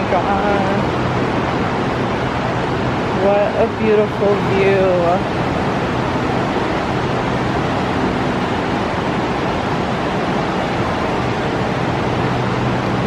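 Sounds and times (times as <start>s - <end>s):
fast river water roaring: 0.0s - 13.0s.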